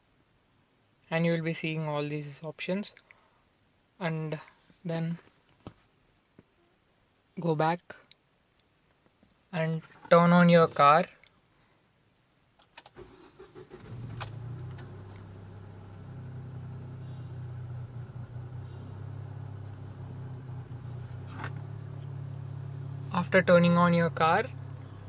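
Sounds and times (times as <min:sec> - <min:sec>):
car engine starting and idling: 0:12.8 - 0:25.0.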